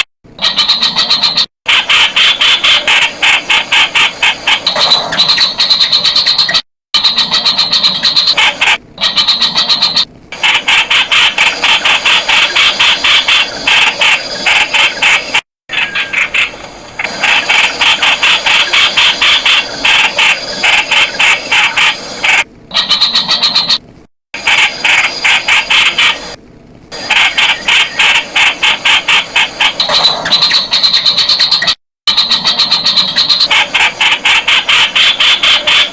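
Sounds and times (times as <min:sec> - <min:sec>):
bird calling sharp notes: 0:22.7 - 0:23.8, 0:27.2 - 0:35.9.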